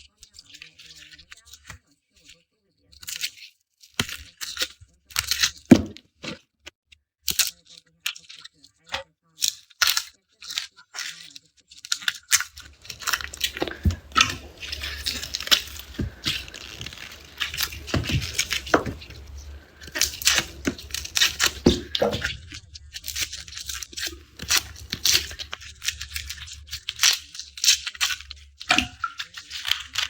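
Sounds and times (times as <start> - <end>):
garlic skins crackling and tearing: 12.4 - 22.4, 23.0 - 28.3
garlic cloves snapping: 12.6 - 22.3.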